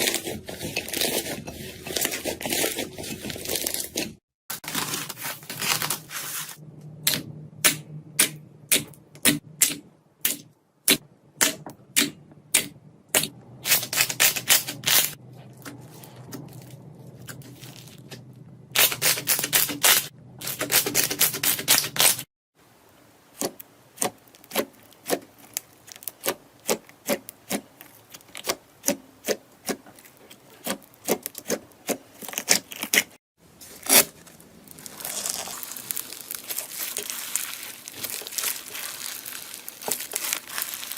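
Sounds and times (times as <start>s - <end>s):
slime crackling: 33.6s - 40.9s.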